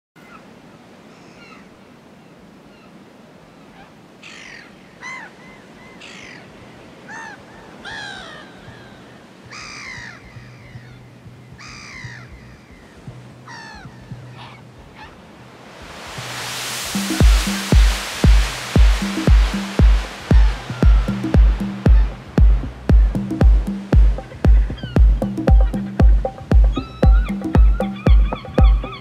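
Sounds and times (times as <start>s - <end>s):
low steady hum: 14.8s - 29.0s
harsh squawking bird calls: 24.2s - 29.0s.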